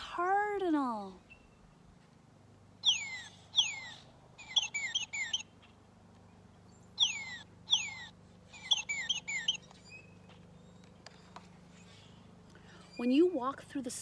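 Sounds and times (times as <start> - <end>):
bird song whistles: 2.8 - 5.5, 7.0 - 10.9.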